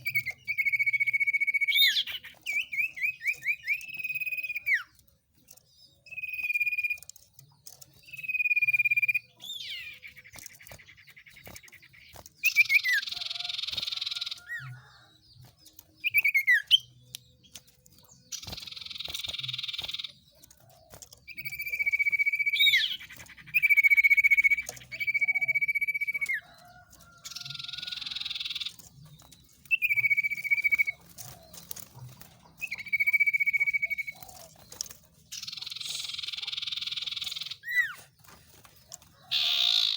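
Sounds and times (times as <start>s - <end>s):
whistled songbird notes: 0.0s - 7.2s, 20.9s - 31.8s, 32.6s - 38.1s
buzzy rattling bird chatter: 0.0s - 39.9s.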